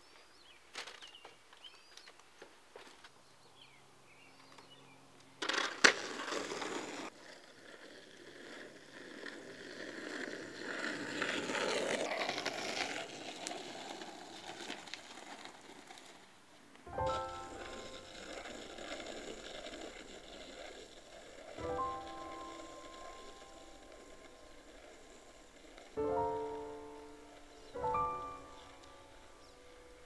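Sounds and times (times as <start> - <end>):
skateboard wheels rolling on asphalt: 0.0 - 30.0
skateboard hitting ground: 5.4 - 29.4.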